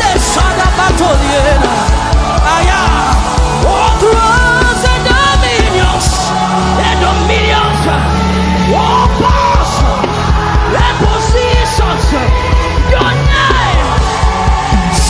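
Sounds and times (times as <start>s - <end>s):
drum beat: 0.0s - 7.1s, 8.7s - 15.0s
bass notes: 0.0s - 15.0s
keyboard chords: 0.0s - 15.0s.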